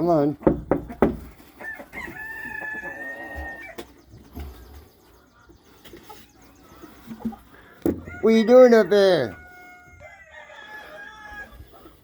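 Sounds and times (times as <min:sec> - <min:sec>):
rooster crowing: 0:01.6 - 0:03.8, 0:07.9 - 0:11.6.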